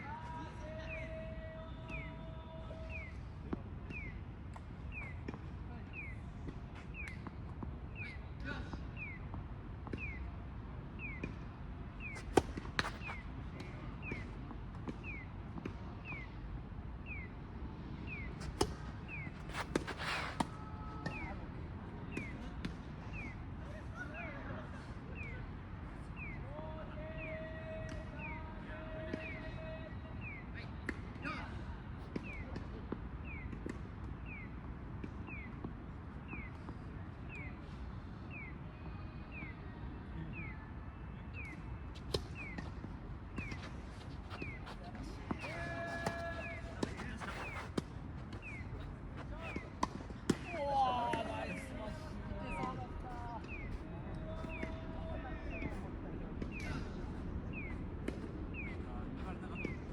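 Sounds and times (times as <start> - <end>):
tennis balls hit: 12.0 - 14.3, 18.1 - 21.2, 43.3 - 51.7
low outdoor rumble: 42.1 - 59.9.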